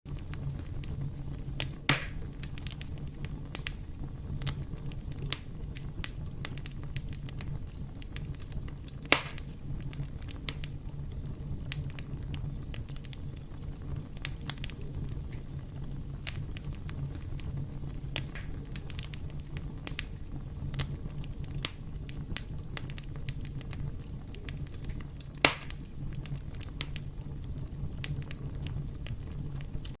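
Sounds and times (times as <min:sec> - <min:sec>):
sharp pops of fire: 0:00.1 - 0:30.0
wood fire crackling: 0:00.1 - 0:30.0.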